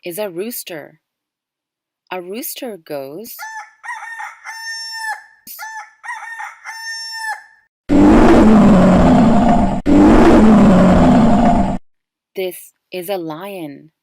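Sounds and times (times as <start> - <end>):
rooster crowing: 3.4 - 7.6
long rough roars: 7.9 - 11.8.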